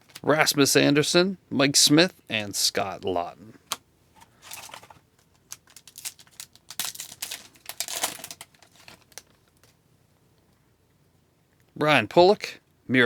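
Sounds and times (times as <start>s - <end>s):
card pack wrapper crinkling: 3.7s - 9.8s.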